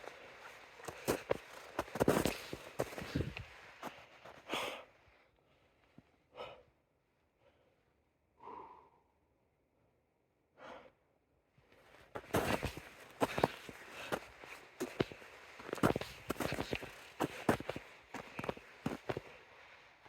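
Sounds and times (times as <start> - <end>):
footsteps: 0.0 - 4.4, 12.2 - 19.4.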